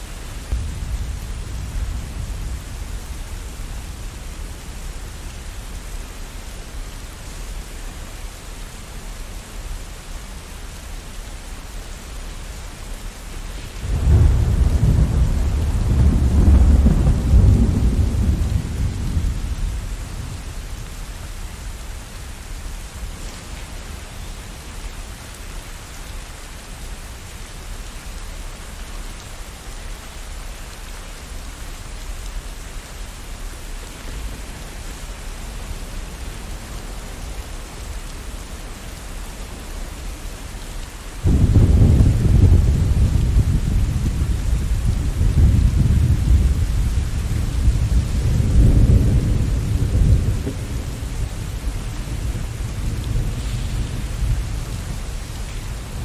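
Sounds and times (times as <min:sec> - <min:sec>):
steady rain falling: 0:00.0 - 0:56.0
thunder rumbling: 0:00.5 - 0:04.9, 0:13.6 - 0:21.4, 0:41.2 - 0:56.0.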